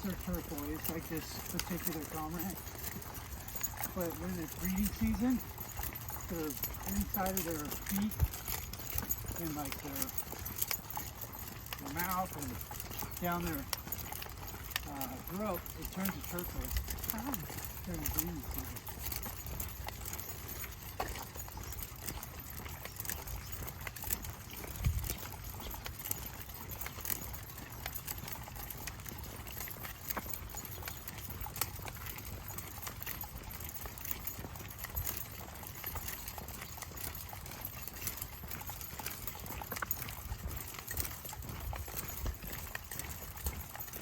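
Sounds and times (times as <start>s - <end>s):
footsteps of person and dogs: 0.0s - 44.0s.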